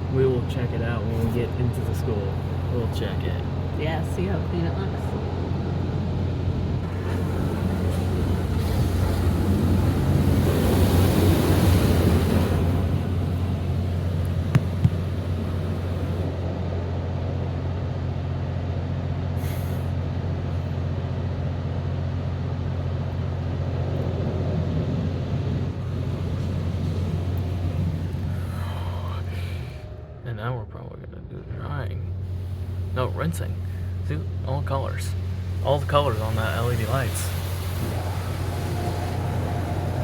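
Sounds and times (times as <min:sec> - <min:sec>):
steady low hum: 0:00.0 - 0:40.0
sharp knocks: 0:14.5 - 0:15.3
water spray hissing: 0:35.1 - 0:40.0.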